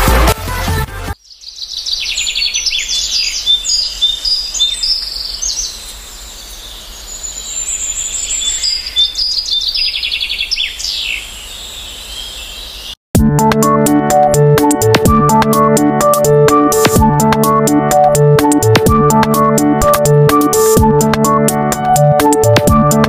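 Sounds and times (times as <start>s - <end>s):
songbirds chirping and trilling: 1.2s - 13.0s.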